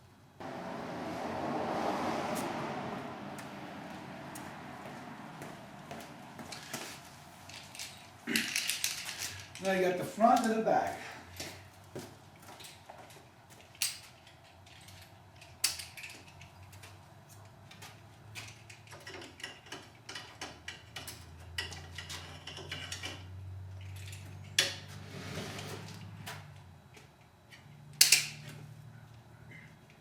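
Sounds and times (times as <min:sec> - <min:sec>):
strap buckles clicking and rattling: 0:06.4 - 0:10.6, 0:12.4 - 0:24.9, 0:25.9 - 0:28.7.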